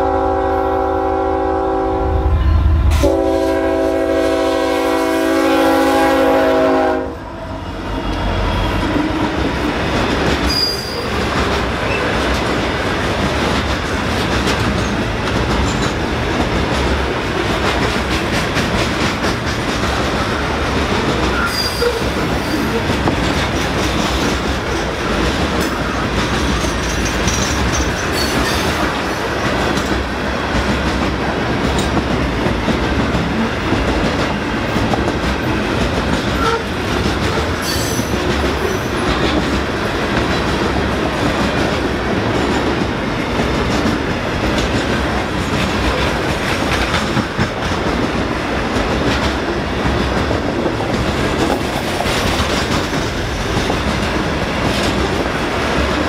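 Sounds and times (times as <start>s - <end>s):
steel wheels rumbling on rail: 0.0s - 56.0s.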